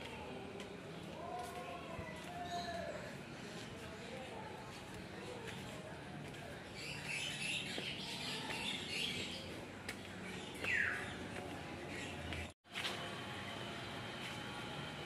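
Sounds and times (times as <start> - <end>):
birds chirping: 6.7 - 12.6.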